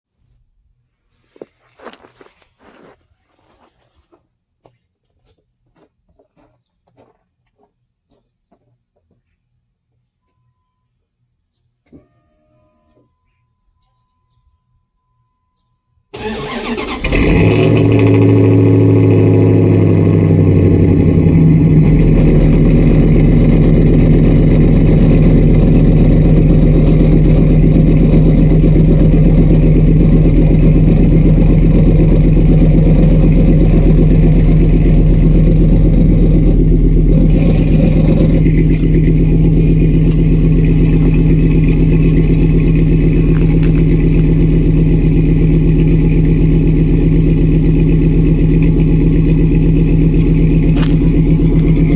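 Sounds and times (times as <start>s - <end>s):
vehicle engine idling: 16.2s - 51.9s.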